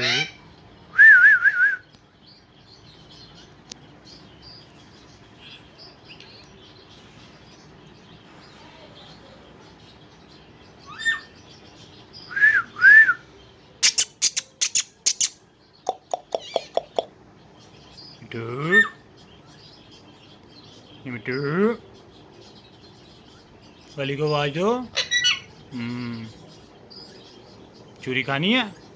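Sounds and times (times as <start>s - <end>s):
parrot squawking and chattering: 0.0s - 0.4s, 13.8s - 17.2s, 24.9s - 25.6s
faint chirps: 12.2s - 17.1s
parrot whistling: 13.8s - 17.1s.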